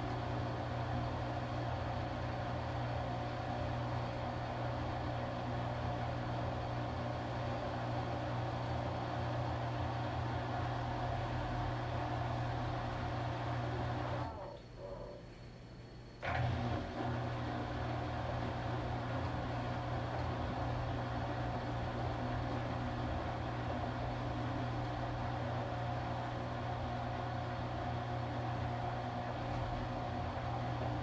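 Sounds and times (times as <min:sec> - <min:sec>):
washing machine motor hum: 0:00.0 - 0:15.2, 0:16.2 - 0:31.0
washing machine whine: 0:00.0 - 0:31.0.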